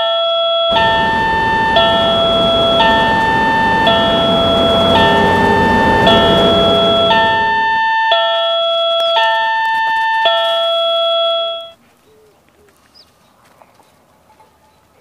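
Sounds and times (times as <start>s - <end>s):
crossing bell ringing two tones: 0.0s - 9.6s
low rumble: 0.7s - 7.8s.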